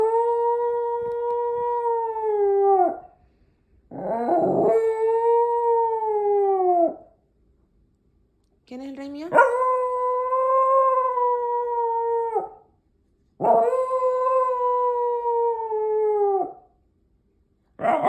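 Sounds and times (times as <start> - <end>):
dog howling: 0.0 - 3.0, 3.9 - 7.1, 9.3 - 12.6, 13.4 - 16.6.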